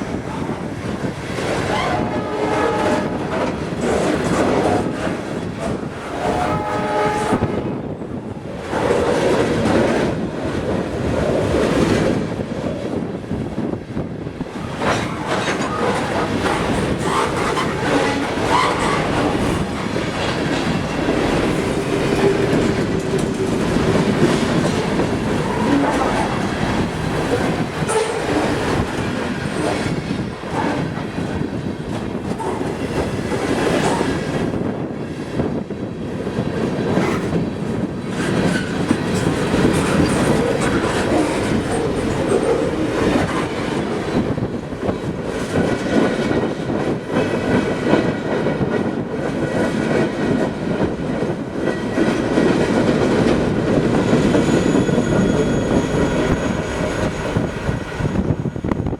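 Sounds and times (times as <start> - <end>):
train rumble: 0.0 - 58.9
wheels clacking over rail joints: 14.6 - 34.3
train wheel squeal: 14.9 - 19.8, 38.0 - 45.8, 53.7 - 58.9.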